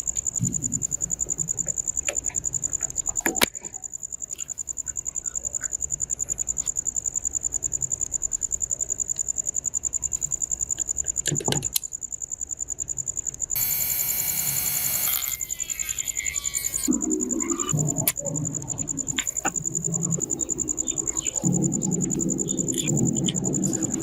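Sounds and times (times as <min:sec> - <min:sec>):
insect trill: 0:00.0 - 0:24.0
loud buzzing: 0:13.6 - 0:16.9.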